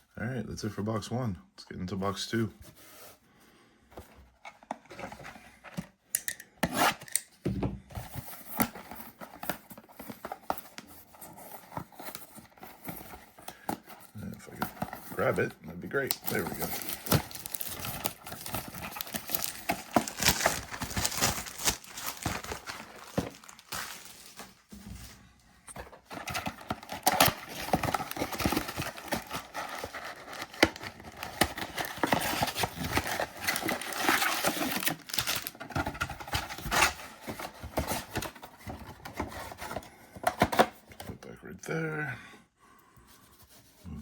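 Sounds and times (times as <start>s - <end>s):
packaging crinkling and tearing: 8.4s - 24.7s, 26.0s - 38.4s.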